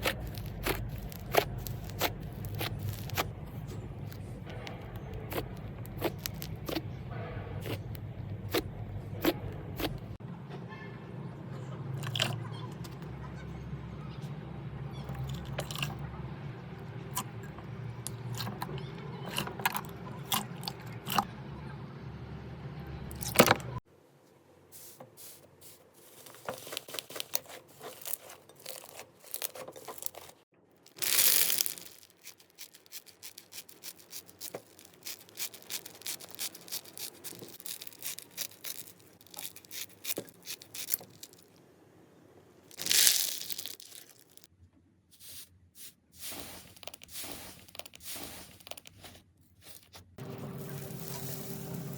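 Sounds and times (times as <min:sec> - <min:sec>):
slime tearing: 0:00.0 - 0:03.3, 0:04.0 - 0:06.8, 0:26.6 - 0:30.3, 0:30.9 - 0:41.5, 0:42.7 - 0:44.5.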